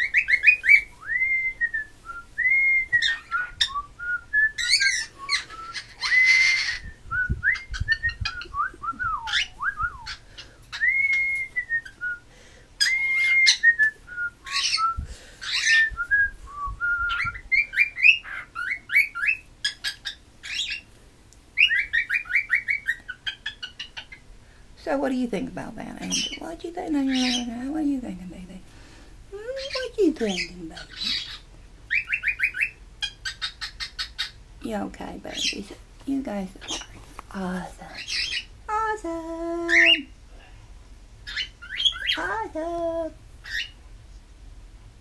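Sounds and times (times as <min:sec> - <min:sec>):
cockatiel whistling: 0:00.0 - 0:12.2, 0:12.8 - 0:20.8, 0:30.9 - 0:34.3.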